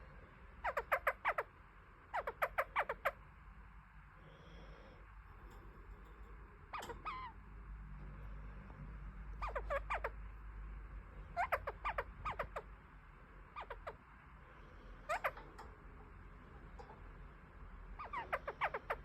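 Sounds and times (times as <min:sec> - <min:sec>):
parakeet chattering: 0:00.5 - 0:03.2, 0:06.5 - 0:07.5, 0:09.2 - 0:10.5, 0:11.1 - 0:14.1, 0:14.8 - 0:19.0.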